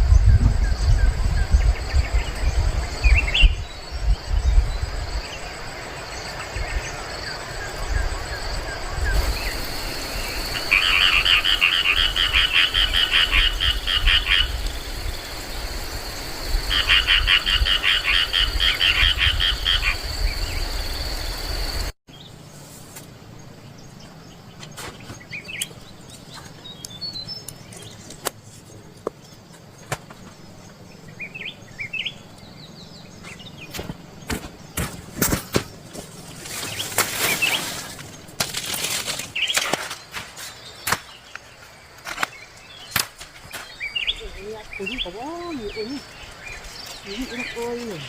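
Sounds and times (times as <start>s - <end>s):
frogs calling in pulsed trills: 10.0s - 21.8s.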